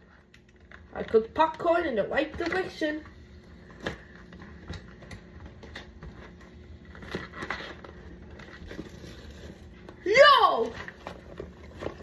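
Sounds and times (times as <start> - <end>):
popcorn bag rustling: 2.5 - 12.0.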